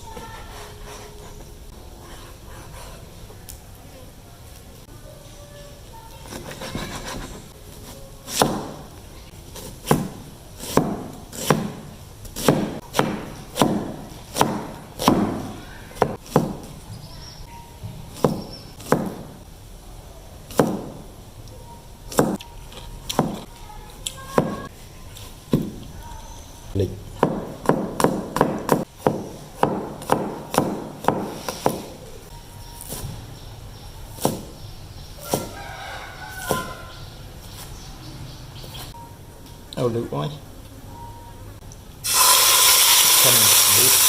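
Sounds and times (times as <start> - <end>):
knife chopping on cutting board: 8.3 - 8.9, 9.6 - 16.7, 18.2 - 19.3, 20.5 - 21.0, 23.1 - 23.4, 27.2 - 31.9, 34.2 - 34.5.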